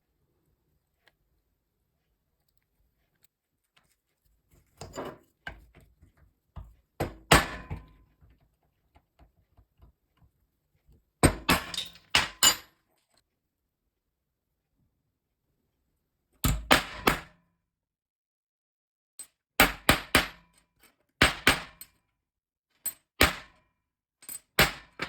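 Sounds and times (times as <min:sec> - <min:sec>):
knocks on workshop tools: 0:07.0 - 0:08.0.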